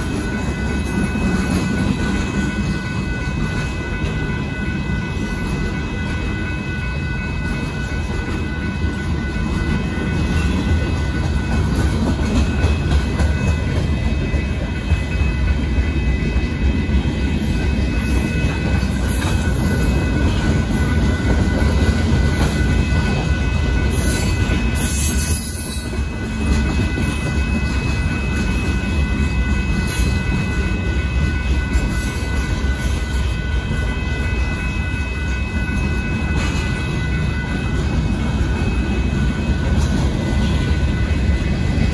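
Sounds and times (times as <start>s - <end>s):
freight train rumbling past: 0.0s - 41.9s.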